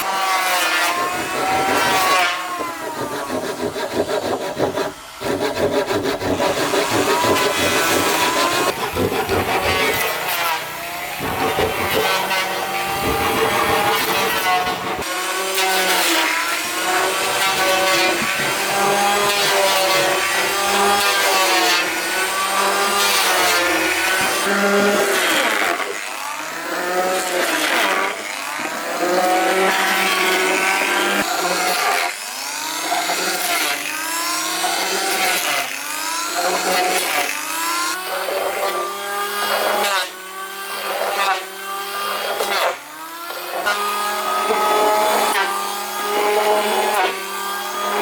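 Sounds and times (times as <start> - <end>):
power tool cutting wood: 0.0 - 48.0.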